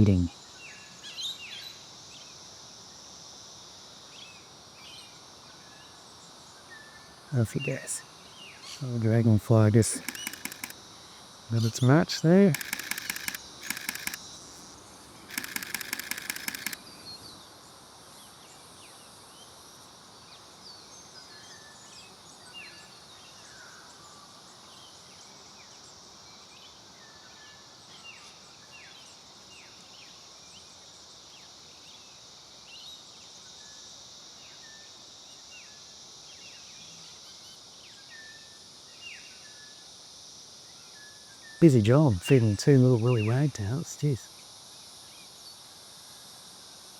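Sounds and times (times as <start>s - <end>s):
high insect drone: 7.4s - 16.9s
camera shutter clicks: 9.8s - 10.8s, 12.5s - 14.2s, 15.3s - 16.8s.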